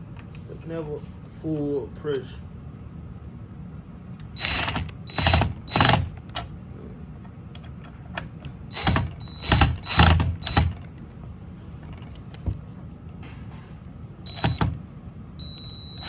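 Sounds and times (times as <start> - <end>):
cordless drill driving screws: 4.4 - 6.2, 8.7 - 10.8, 14.3 - 14.7.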